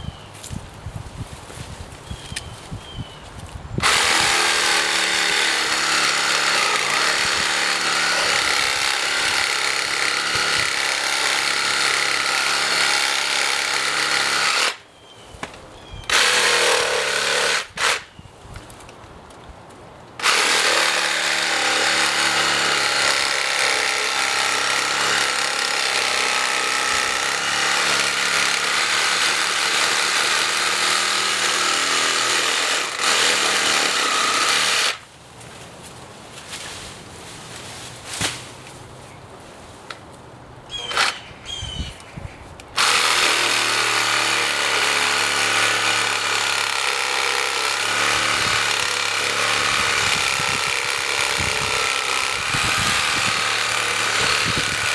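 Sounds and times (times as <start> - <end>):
reciprocating saw cutting branch: 3.8 - 14.8, 16.1 - 18.2, 20.2 - 35.0, 42.7 - 54.9.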